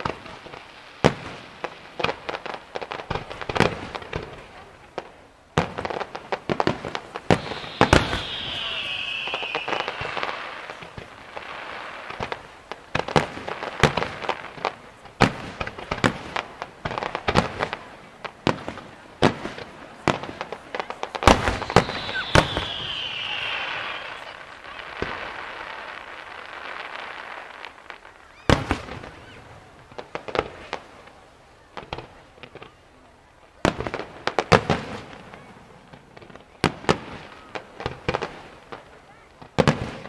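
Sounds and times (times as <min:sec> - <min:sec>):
fireworks bursts and bangs: 0:00.0 - 0:40.0
fireworks crackling hiss: 0:00.0 - 0:40.0
falling whistle: 0:07.4 - 0:10.6, 0:21.5 - 0:24.4.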